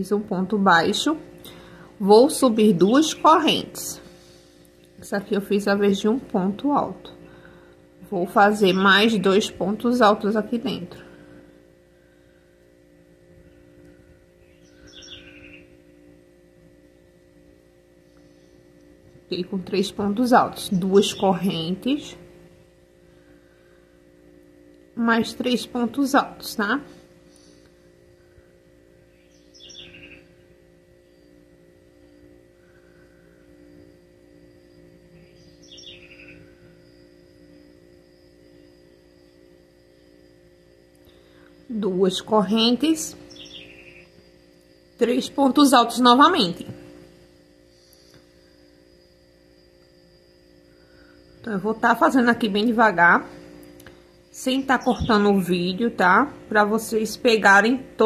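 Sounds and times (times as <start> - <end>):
faint hum: 0.0 - 58.0
bird chirping: 14.4 - 15.8, 29.1 - 30.3, 35.2 - 36.6, 43.2 - 44.3.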